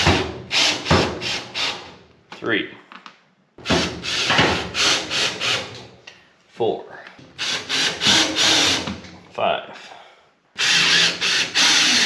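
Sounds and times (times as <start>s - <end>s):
power drill driving screws: 7.4s - 8.9s, 10.6s - 12.0s.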